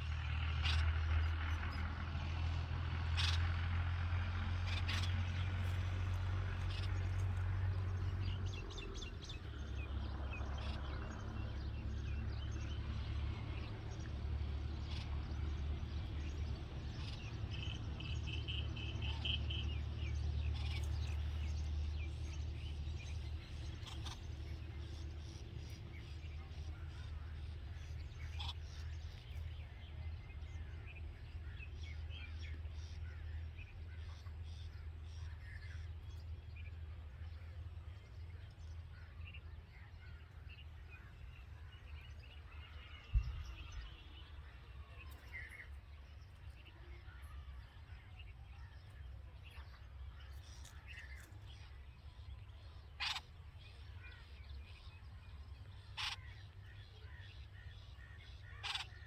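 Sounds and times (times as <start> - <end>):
faint bird chirps: 32.9 - 59.0
short loud bird calls: 52.8 - 54.6, 55.8 - 59.0.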